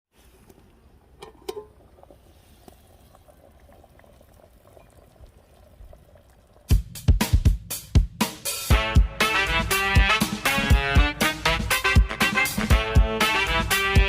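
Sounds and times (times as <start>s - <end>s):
broth bubbling in a pot: 0.2s - 7.5s.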